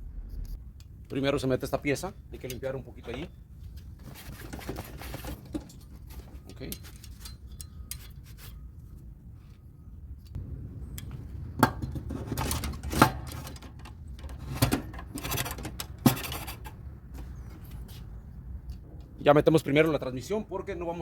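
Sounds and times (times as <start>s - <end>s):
metal parts knocking and scraping: 11.7s - 16.8s.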